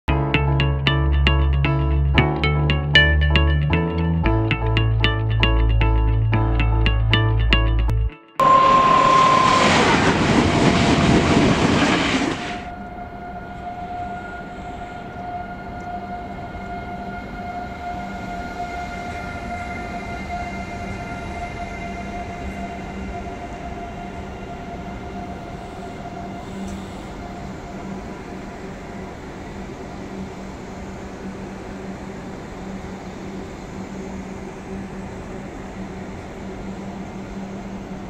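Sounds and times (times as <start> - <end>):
loud intro music: 0.1 - 10.2
train equipment whining over rumble: 8.4 - 38.0.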